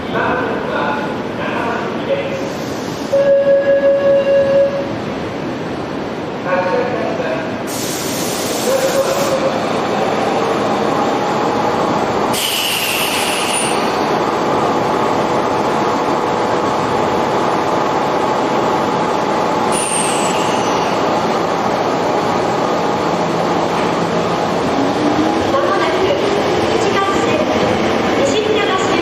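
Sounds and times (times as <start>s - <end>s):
electric train rumbling and whining: 0.0s - 29.0s
short bursts of hiss: 7.7s - 9.2s, 12.3s - 13.9s.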